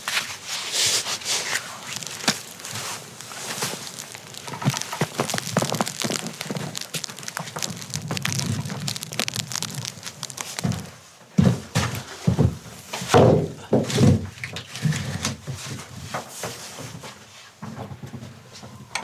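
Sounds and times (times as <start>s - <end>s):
dense crackling: 0.0s - 13.1s.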